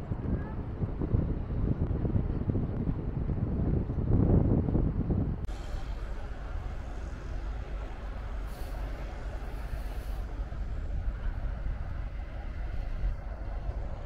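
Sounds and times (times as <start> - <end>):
train rumbling: 5.2 - 14.0
brief hiss: 5.5 - 14.0.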